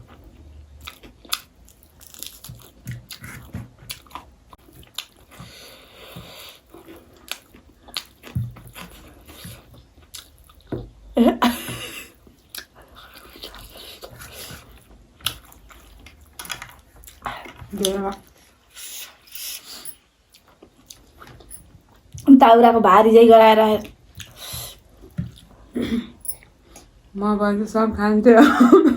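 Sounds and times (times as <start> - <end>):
chewing and biting: 0.0 - 10.7, 12.3 - 18.0, 19.1 - 22.3.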